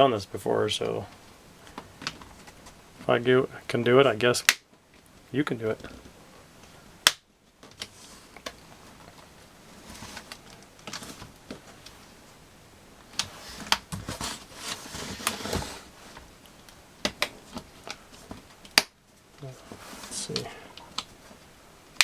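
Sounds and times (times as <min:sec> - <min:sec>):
plastic rustling and scraping: 0:07.6 - 0:12.4, 0:13.0 - 0:18.6, 0:19.4 - 0:21.5.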